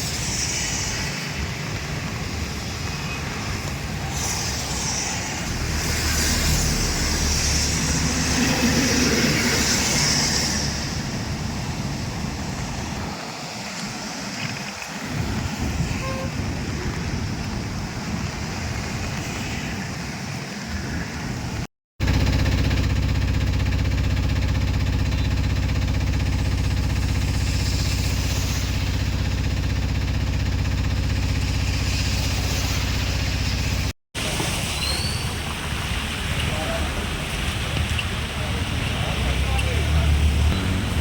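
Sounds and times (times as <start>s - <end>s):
outdoor traffic: 0.0s - 41.0s
vehicle engine running: 1.6s - 13.2s, 22.0s - 34.6s, 35.4s - 41.0s.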